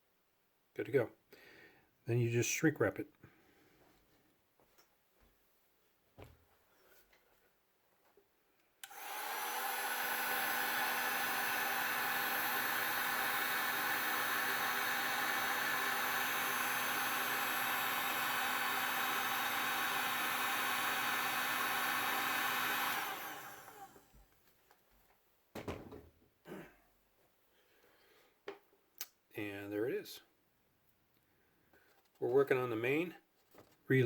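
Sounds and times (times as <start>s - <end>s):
electric heat gun blowing: 8.8s - 24.1s.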